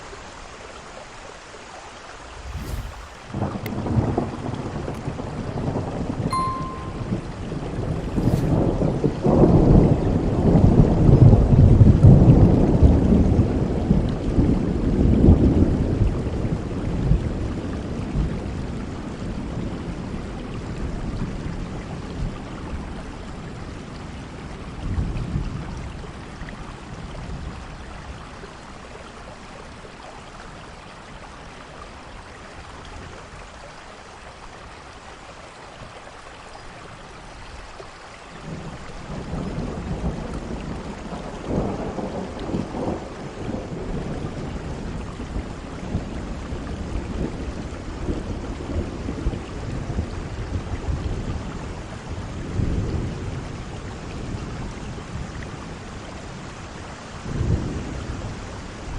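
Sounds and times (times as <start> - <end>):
heavy rain falling: 0.0 - 58.9
rolling thunder: 2.2 - 6.3, 7.0 - 18.6.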